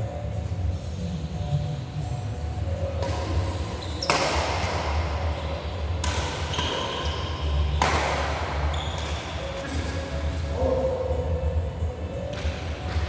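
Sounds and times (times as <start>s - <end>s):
shoe squeaks: 3.6s - 4.4s, 6.4s - 7.7s, 8.7s - 10.0s.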